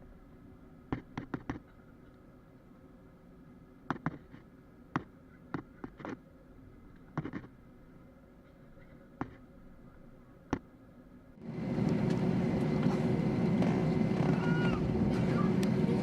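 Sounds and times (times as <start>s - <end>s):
airplane cabin hum: 3.7s - 16.0s.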